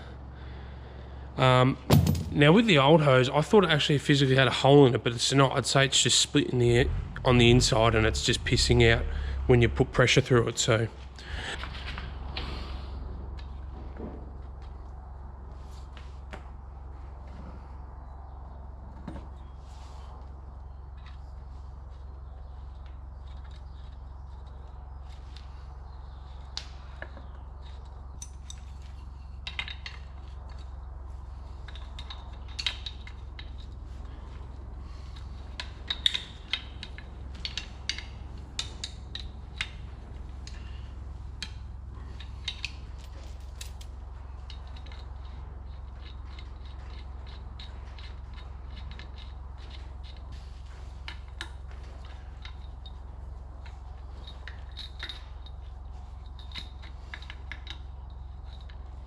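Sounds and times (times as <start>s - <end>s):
steady low hum: 0.0s - 59.0s
metal tools clinking: 31.6s - 59.0s.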